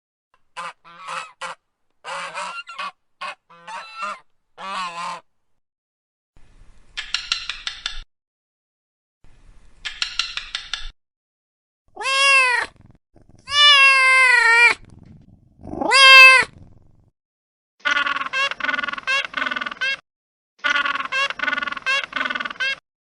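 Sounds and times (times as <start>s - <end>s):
cat raspy cries: 11.9s - 12.8s, 13.4s - 14.8s, 15.6s - 16.6s
cat meowing: 12.0s - 12.8s, 13.4s - 14.8s, 15.6s - 16.6s.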